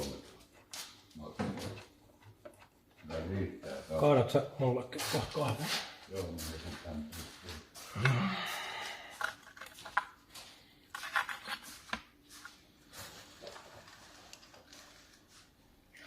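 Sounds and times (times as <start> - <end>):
small hard objects clattering: 9.1 - 10.2.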